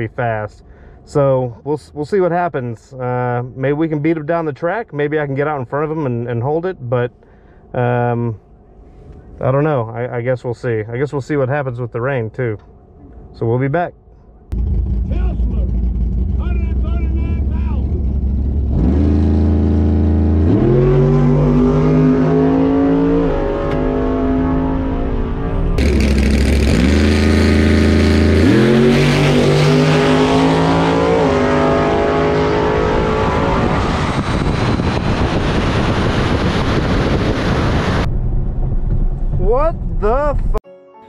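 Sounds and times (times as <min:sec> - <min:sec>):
car engine revving: 0:14.5 - 0:40.1.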